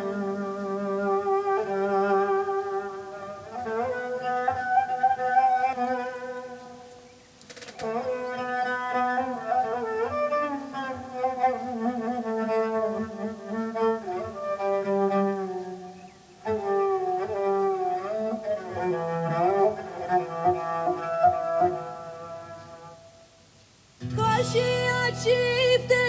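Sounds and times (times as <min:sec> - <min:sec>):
bowed fiddle folk melody: 0:00.0 - 0:26.0.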